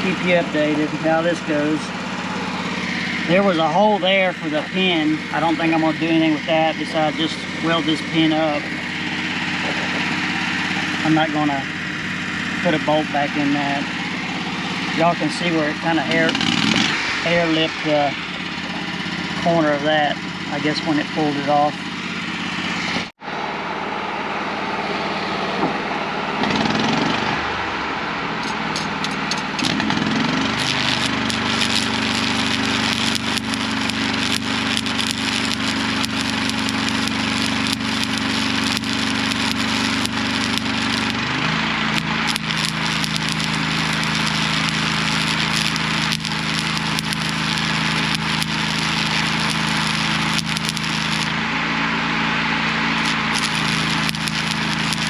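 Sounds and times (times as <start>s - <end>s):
welding arc crackling: 0.0s - 19.8s, 29.6s - 51.5s, 52.7s - 55.0s
engine running: 0.0s - 55.0s.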